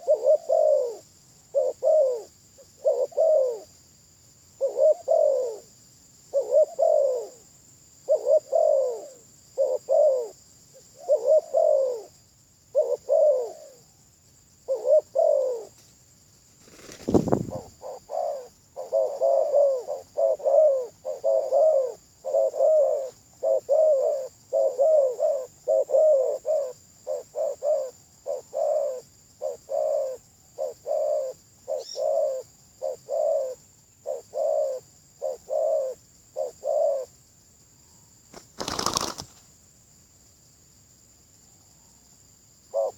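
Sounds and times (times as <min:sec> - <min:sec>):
dove cooing: 0:00.0 - 0:03.8, 0:04.6 - 0:13.9, 0:14.6 - 0:15.8, 0:16.7 - 0:37.1, 0:38.6 - 0:39.3
steady high hiss: 0:15.6 - 0:24.5.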